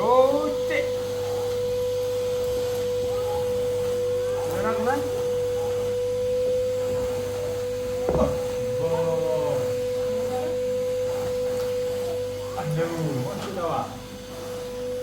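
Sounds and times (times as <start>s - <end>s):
short knock: 8.1s - 8.7s.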